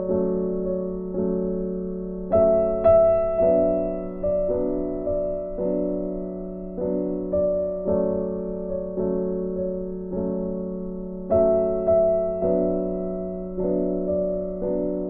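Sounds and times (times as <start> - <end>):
soft piano-like keyboard music: 0.0 - 15.0.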